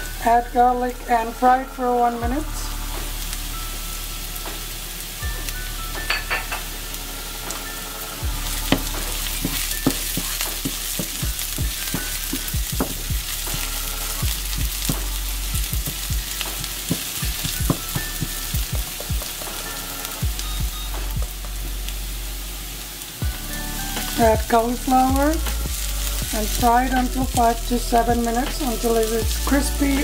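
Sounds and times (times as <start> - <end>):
onion and garlic sizzling in pan: 0.0 - 30.0
utensil tapping and scraping pan: 8.6 - 13.8.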